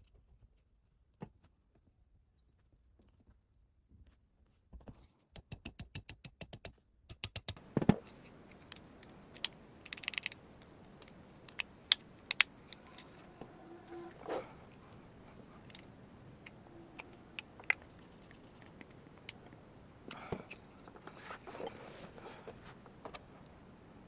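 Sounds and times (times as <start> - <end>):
parts tapping: 4.8 - 21.2
sharp clicks of metal parts: 5.4 - 7.6, 8.5 - 13.0.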